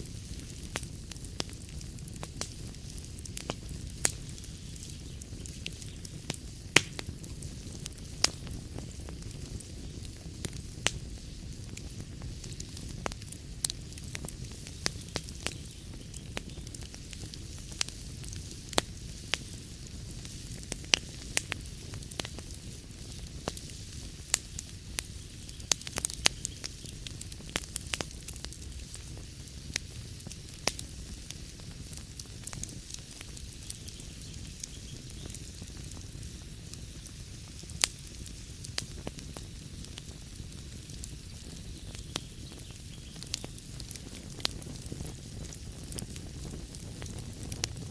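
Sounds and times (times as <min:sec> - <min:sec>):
fire crackling and popping: 0:00.0 - 0:47.9
low rumble of flame: 0:00.0 - 0:47.9
loud fire pop: 0:06.8 - 0:07.2.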